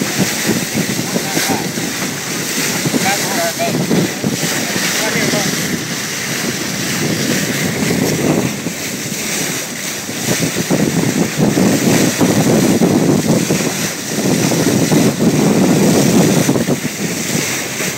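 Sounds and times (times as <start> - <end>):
water rushing along boat hull: 0.0 - 17.9
wind buffeting microphone: 0.0 - 17.9.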